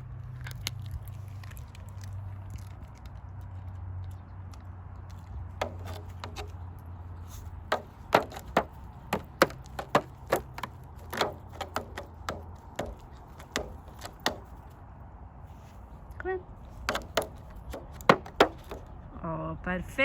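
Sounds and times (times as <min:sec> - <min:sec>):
dog striking a drum: 0:05.6 - 0:06.5, 0:07.7 - 0:14.5, 0:16.9 - 0:18.9.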